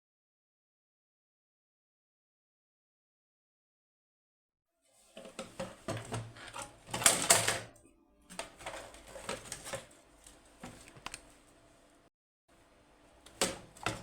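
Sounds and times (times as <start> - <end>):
plastic parts clicking and clattering: 5.2 - 7.7, 8.3 - 11.2.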